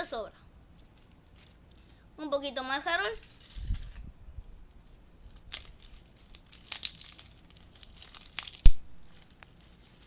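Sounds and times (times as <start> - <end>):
dry leaves crinkling and rustling: 0.8 - 1.7, 4.7 - 10.0.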